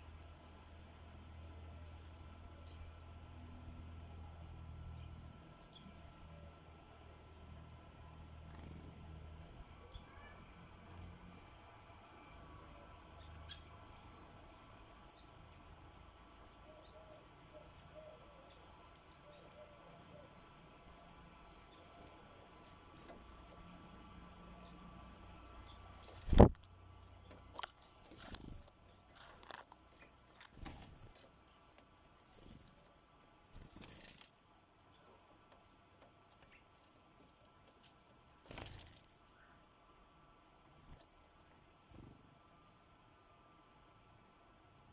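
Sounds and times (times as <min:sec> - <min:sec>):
sparrows chirping: 0:00.0 - 0:35.2
birds pecking at feeder: 0:12.9 - 0:39.5.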